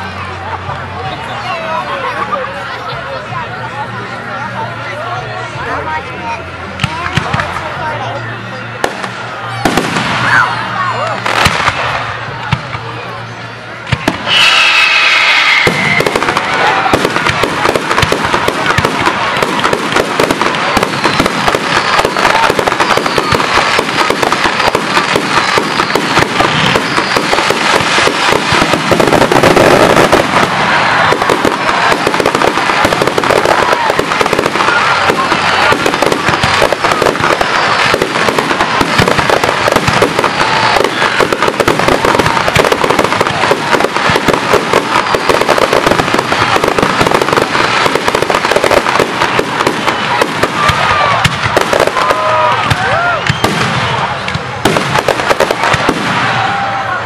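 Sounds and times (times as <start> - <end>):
fireworks bursting and crackling: 5.5 - 8.0, 8.6 - 57.0.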